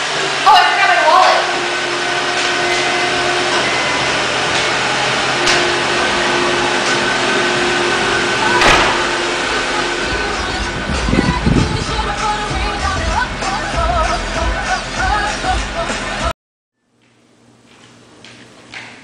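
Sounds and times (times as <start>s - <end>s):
car engine idling: 0.0s - 16.3s
loud thump: 8.6s - 9.4s.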